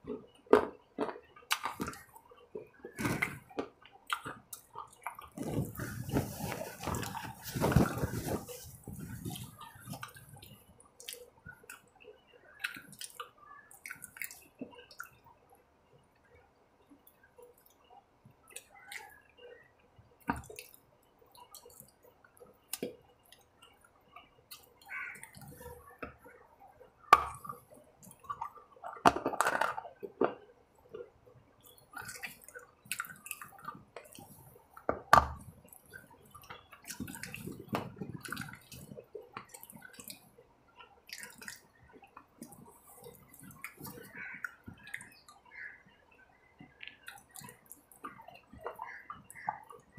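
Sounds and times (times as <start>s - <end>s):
wet chewing and smacking: 0.0s - 15.2s, 29.9s - 45.4s, 46.6s - 49.9s.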